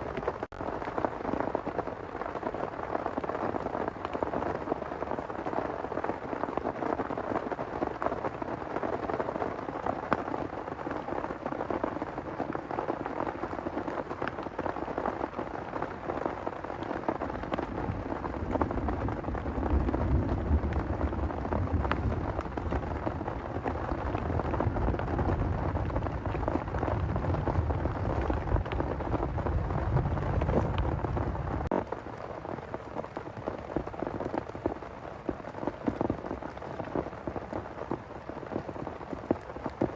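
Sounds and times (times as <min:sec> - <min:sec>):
heavy rain pattering: 0:00.0 - 0:39.9
low rumble of thunder: 0:16.3 - 0:31.9.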